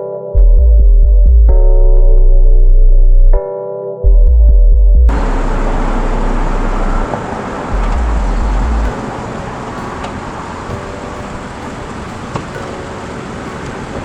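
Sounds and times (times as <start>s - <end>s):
heavy low rumble: 0.4s - 3.4s, 4.1s - 12.3s
road traffic noise: 5.1s - 14.0s.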